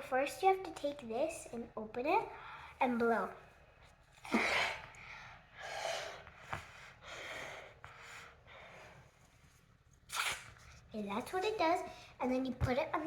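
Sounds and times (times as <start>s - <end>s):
child blowing into whoopee cushion: 10.1s - 10.6s.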